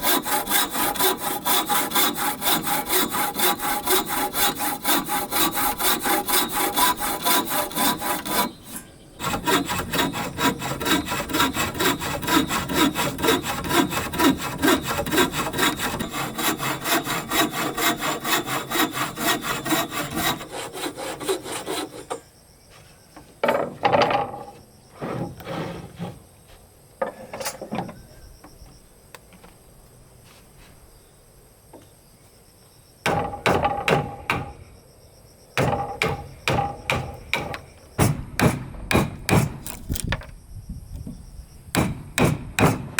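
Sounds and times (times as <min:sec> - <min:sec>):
hand saw cutting wood: 0:00.0 - 0:22.2, 0:35.7 - 0:40.1
insect buzz: 0:34.0 - 0:38.1, 0:39.5 - 0:42.1.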